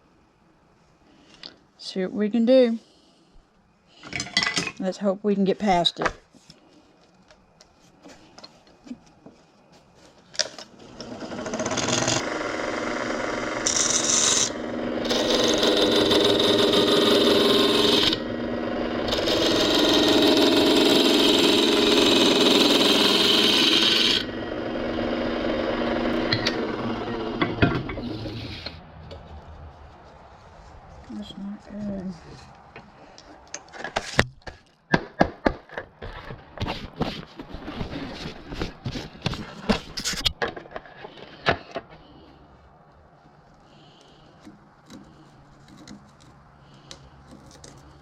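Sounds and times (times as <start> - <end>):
lathe tool cutting wood: 11.0 - 28.8.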